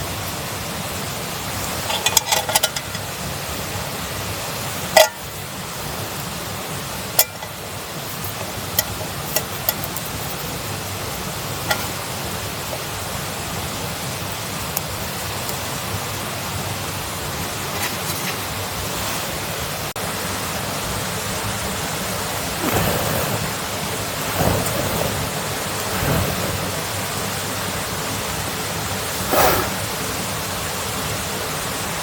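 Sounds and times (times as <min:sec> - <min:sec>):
steady rushing noise: 0:20.9 - 0:31.3.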